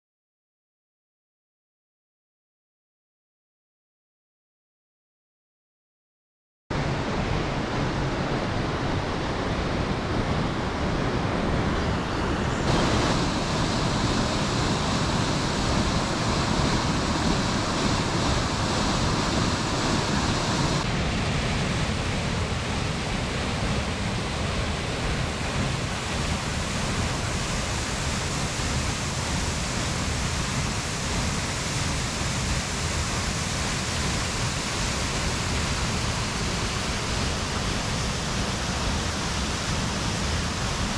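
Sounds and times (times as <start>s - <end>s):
waterfall rushing: 9.3s - 40.9s.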